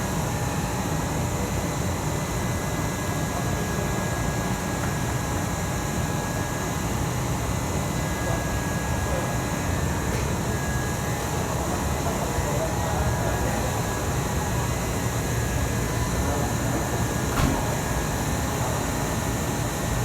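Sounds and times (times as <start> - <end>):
ventilation hum and hiss: 0.0 - 20.0
faint murmur of people: 7.9 - 20.0.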